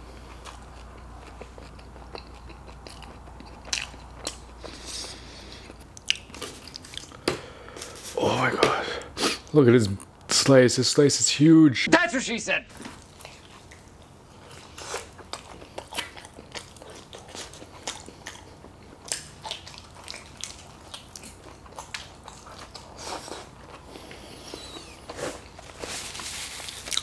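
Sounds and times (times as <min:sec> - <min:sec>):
biting and chewing pizza: 0:00.1 - 0:08.8, 0:12.7 - 0:27.0
paper napkin rustling: 0:25.1 - 0:27.0.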